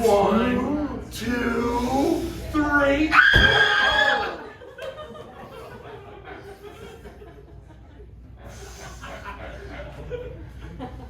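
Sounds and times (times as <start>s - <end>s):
audience laughing: 3.9s - 11.0s.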